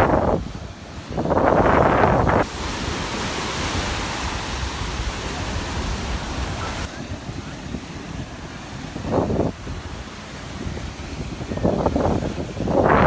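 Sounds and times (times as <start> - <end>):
surf washing on beach: 0.0 - 13.0
wind rumble on microphone: 0.0 - 13.0.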